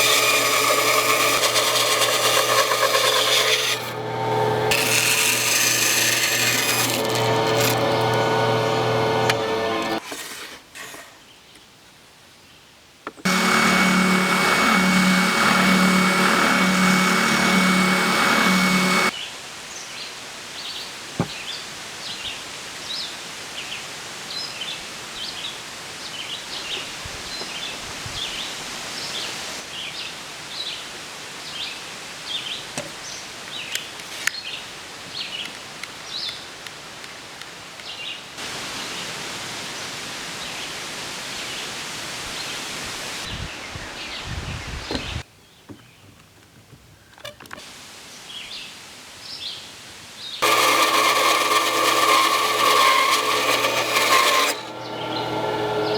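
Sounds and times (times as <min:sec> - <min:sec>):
machine with low pulse: 0:13.3 - 0:19.1
outdoor hiss: 0:18.8 - 0:45.6, 0:47.0 - 0:50.4
birds chirping: 0:54.7 - 0:55.9.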